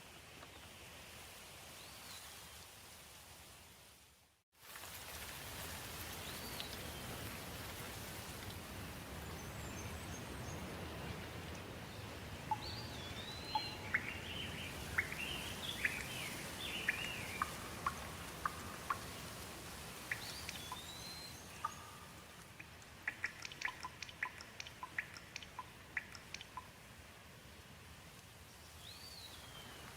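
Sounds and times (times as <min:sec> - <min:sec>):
rain hissing: 0:04.6 - 0:29.9
small bird chirping and whistling: 0:12.5 - 0:14.3.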